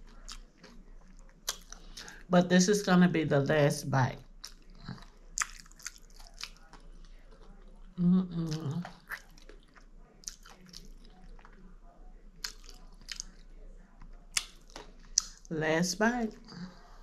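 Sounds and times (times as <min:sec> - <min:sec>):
person chewing with wet mouth clicks: 0:00.1 - 0:02.2, 0:04.4 - 0:11.7, 0:12.4 - 0:13.5, 0:14.1 - 0:15.5.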